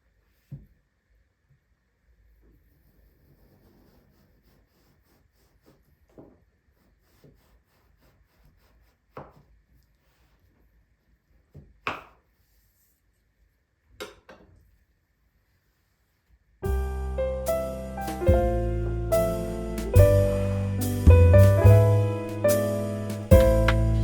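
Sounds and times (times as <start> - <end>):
piano music: 16.6 - 24.0
light handling knocks and rubs: 19.9 - 24.0.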